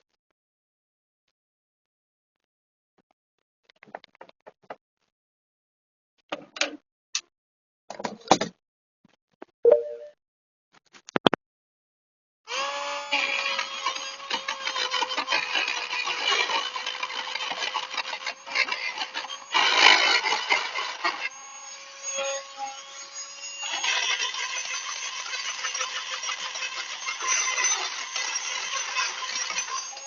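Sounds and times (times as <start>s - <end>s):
tool scraping metal: 13.1s - 30.0s.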